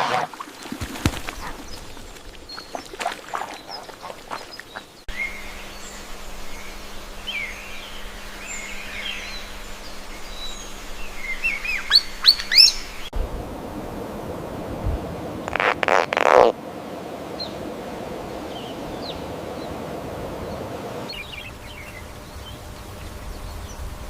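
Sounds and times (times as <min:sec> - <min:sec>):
birds chirping: 0:01.1 - 0:13.1, 0:18.3 - 0:24.0
faint steady hum: 0:03.8 - 0:24.0.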